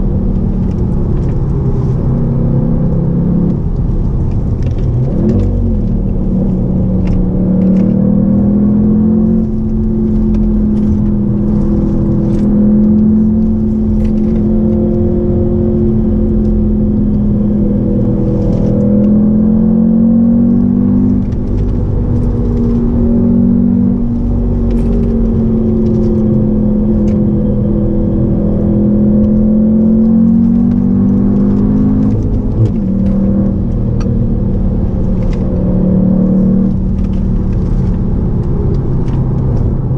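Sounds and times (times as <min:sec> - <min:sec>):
car engine pulling: 0:00.0 - 0:39.9.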